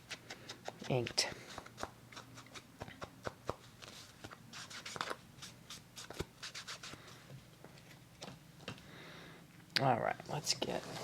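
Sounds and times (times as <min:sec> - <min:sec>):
ink pad tapping and rubbing paper: 0:00.0 - 0:05.2.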